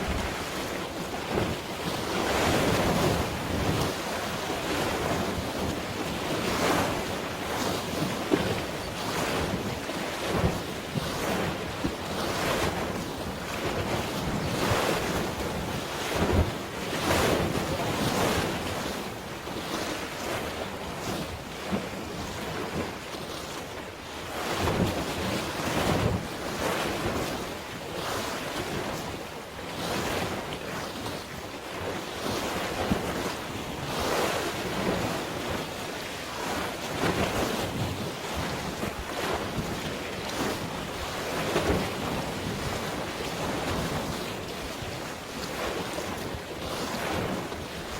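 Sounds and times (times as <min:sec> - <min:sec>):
wind buffeting microphone: 0:00.0 - 0:19.0
sea waves splashing: 0:00.0 - 0:47.9.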